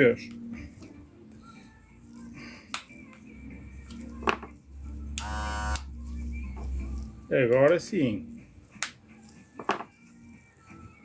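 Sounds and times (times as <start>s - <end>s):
electric hair clipper humming: 5.2s - 5.9s.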